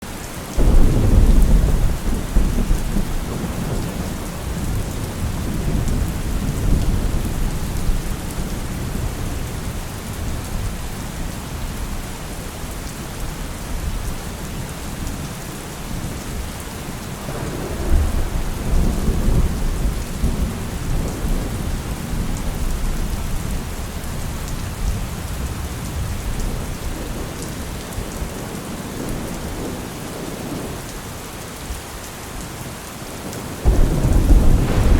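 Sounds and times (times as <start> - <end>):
steady rain falling: 0.0 - 34.9
thunder rumbling: 0.6 - 10.8, 17.2 - 23.2, 33.6 - 34.9.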